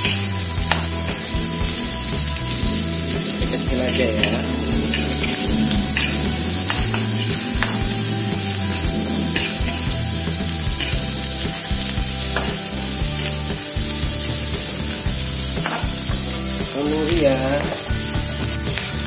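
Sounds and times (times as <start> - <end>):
metal spatula scraping a pan: 0.0 - 13.6
oil sizzling in a wok: 0.0 - 19.0.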